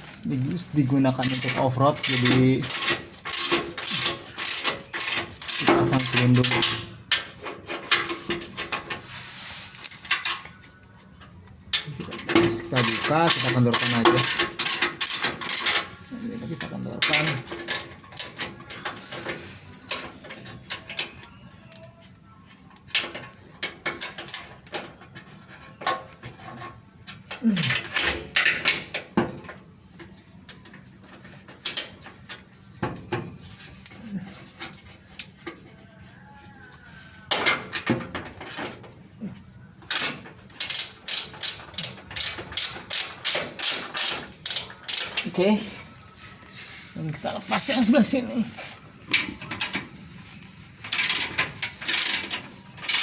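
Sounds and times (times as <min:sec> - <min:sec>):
wrench clicking on metal bolts: 0:01.0 - 0:09.0, 0:11.7 - 0:16.0, 0:16.6 - 0:21.3, 0:22.8 - 0:29.2, 0:30.0 - 0:32.4, 0:39.9 - 0:45.4, 0:50.8 - 0:53.0
ratchet wrench clicking: 0:01.2 - 0:06.8, 0:12.8 - 0:15.9, 0:39.9 - 0:45.3, 0:50.9 - 0:53.0.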